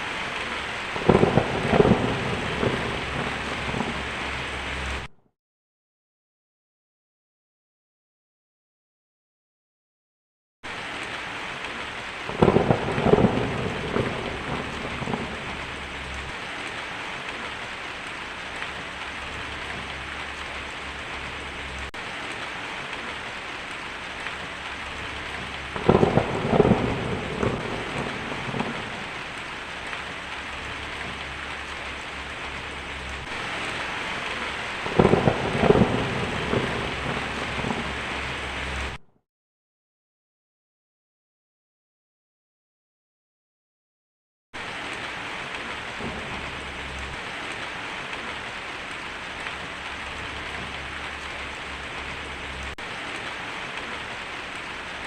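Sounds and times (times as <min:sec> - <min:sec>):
heavy rain on a tin roof: 0:00.0 - 0:05.1, 0:10.7 - 0:39.0, 0:44.6 - 0:55.0
thunder rumbling: 0:00.0 - 0:05.1, 0:12.1 - 0:39.0, 0:45.4 - 0:55.0.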